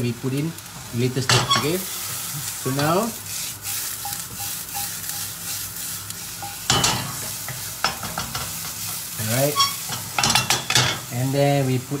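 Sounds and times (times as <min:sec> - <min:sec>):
food sizzling in frying pan: 0:00.0 - 0:12.0
spatula scraping and clattering: 0:01.3 - 0:11.1
spatula tapping pan: 0:03.7 - 0:05.3, 0:06.4 - 0:09.0.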